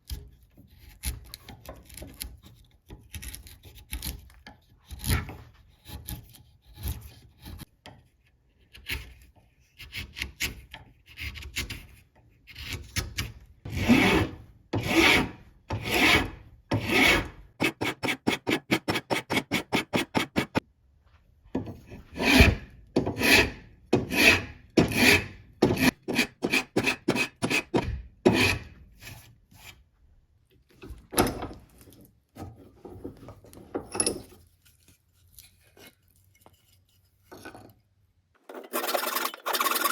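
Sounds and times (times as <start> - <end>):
hand file scraping steel blade: 0.0 - 7.8, 8.6 - 20.6, 21.9 - 29.8, 38.5 - 39.9.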